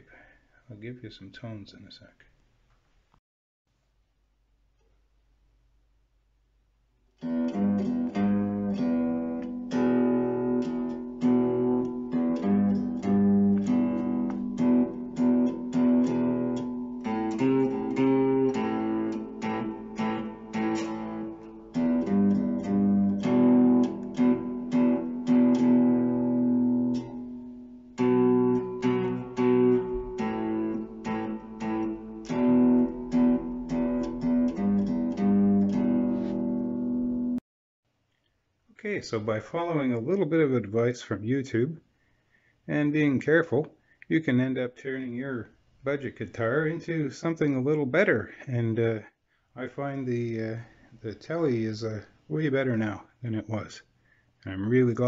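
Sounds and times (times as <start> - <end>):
electric guitar chords strummed: 7.2 - 37.4.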